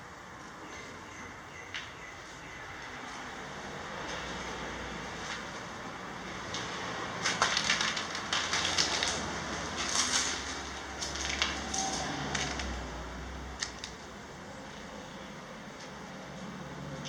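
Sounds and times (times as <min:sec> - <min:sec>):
sharp crunching and crackling: 0:06.4 - 0:14.1.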